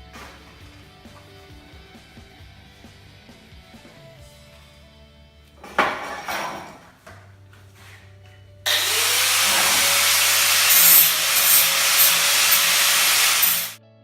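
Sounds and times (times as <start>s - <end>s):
electric grinder grinding steel: 8.7s - 13.8s.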